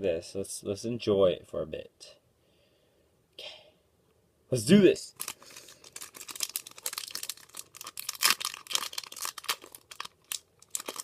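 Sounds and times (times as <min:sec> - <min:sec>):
foil wrapper tearing and crinkling: 0:05.2 - 0:11.0.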